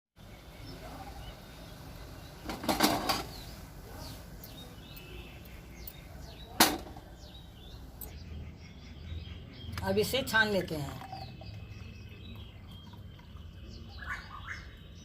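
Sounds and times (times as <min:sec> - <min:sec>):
small birds chirping: 0:00.2 - 0:15.0
loud noisy clatter: 0:02.5 - 0:03.3.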